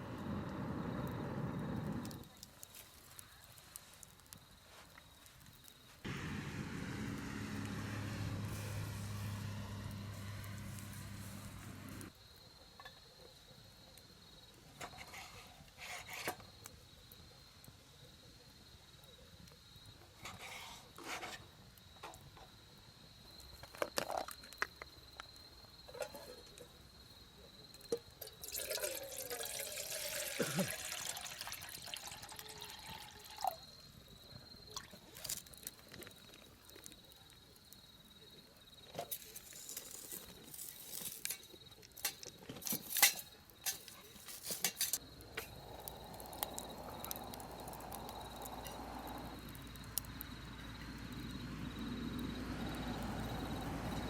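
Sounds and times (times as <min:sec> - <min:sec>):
liquid being poured: 0:28.2 - 0:33.6
camp cookware clicking and knocking: 0:41.2 - 0:45.6.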